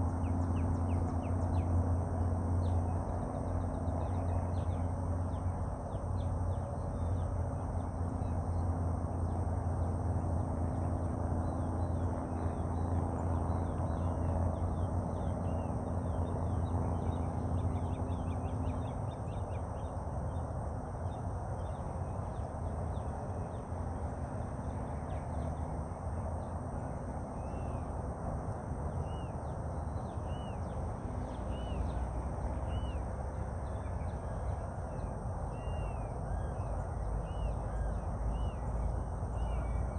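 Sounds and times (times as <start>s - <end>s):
steady low hum: 0.0s - 39.9s
birds chirping: 28.5s - 39.9s.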